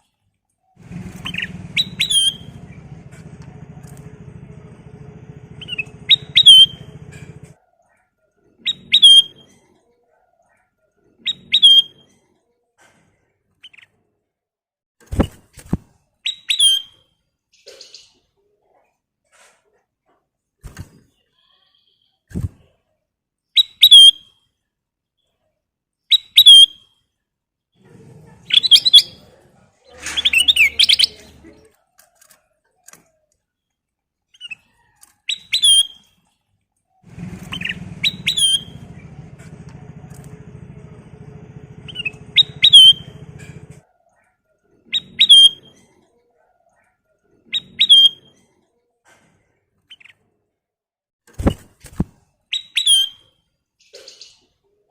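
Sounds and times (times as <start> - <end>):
low steady hum: 0.8 - 7.5, 37.1 - 43.8
bulbul whistled calls: 1.2 - 2.7, 5.5 - 7.2, 37.4 - 39.0, 41.7 - 43.3, 45.0 - 45.7.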